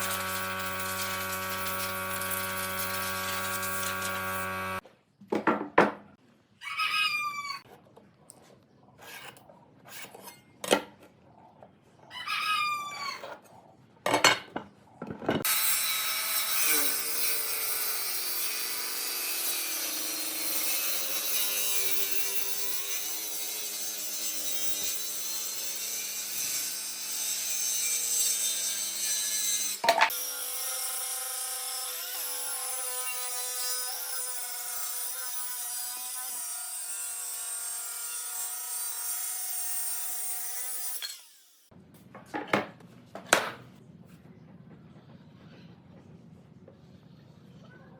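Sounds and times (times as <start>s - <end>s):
power tool working on wood: 0.0s - 4.8s, 15.4s - 41.7s.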